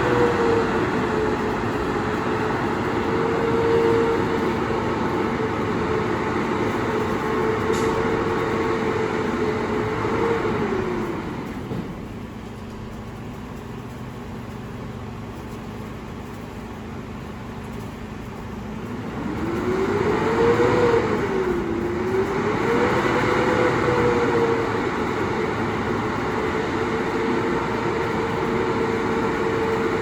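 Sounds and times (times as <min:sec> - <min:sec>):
garbage truck engine revving: 0:00.0 - 0:12.1, 0:18.9 - 0:30.0.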